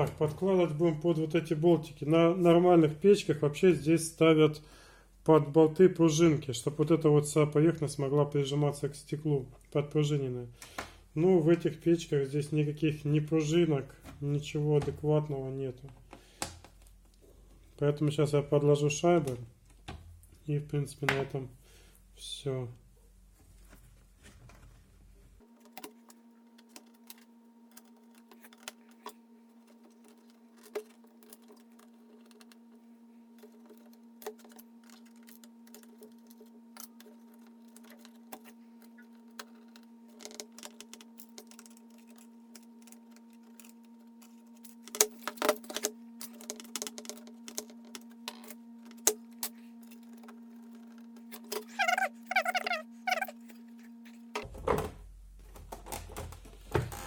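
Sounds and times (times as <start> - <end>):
steady hum: 25.3 - 56.0
small metal parts clinking: 25.5 - 32.8, 33.4 - 47.7.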